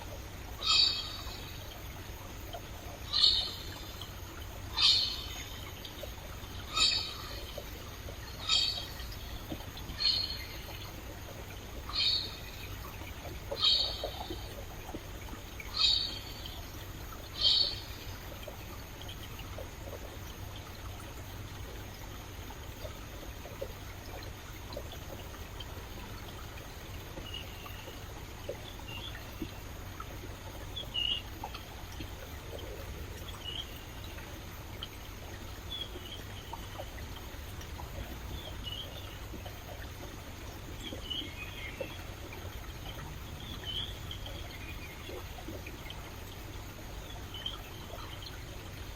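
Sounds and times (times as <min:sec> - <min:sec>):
stream water trickling: 0:00.0 - 0:48.9
soft bird chirps: 0:00.6 - 0:01.9, 0:02.5 - 0:20.0, 0:22.8 - 0:29.6, 0:35.4 - 0:37.0, 0:38.0 - 0:46.0.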